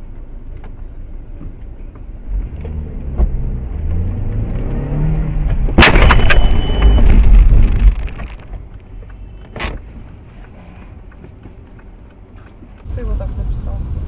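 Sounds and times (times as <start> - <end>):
car engine accelerating: 2.1 - 8.0.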